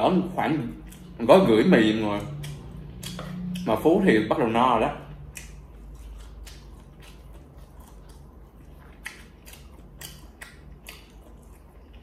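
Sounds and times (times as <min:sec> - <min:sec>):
chewing noodles with mouth clicks: 0:00.7 - 0:01.2, 0:02.1 - 0:03.8, 0:05.2 - 0:12.0.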